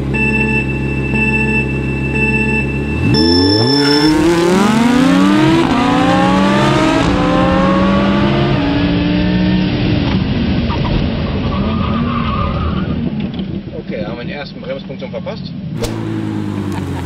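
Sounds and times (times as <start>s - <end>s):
sports car engine accelerating: 0.0s - 11.6s, 15.7s - 17.0s.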